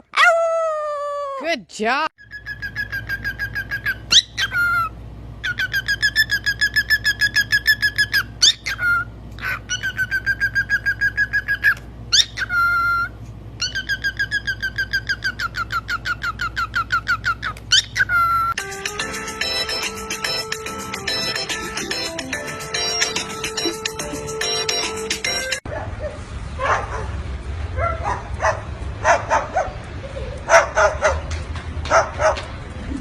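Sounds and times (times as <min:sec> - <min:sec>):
pet bird chirping rapidly: 0:02.2 - 0:18.6.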